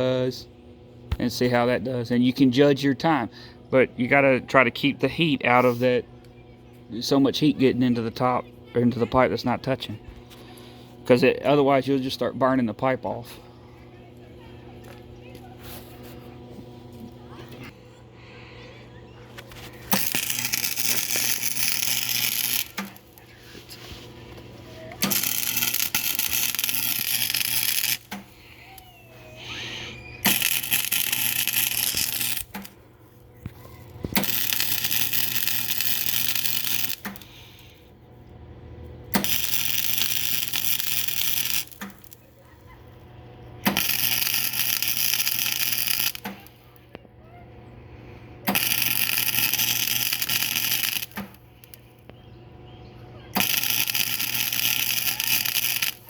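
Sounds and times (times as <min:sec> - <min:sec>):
welder crackling and sizzling: 0:19.3 - 0:37.8, 0:39.0 - 0:46.8, 0:48.4 - 0:52.1, 0:53.3 - 0:56.0.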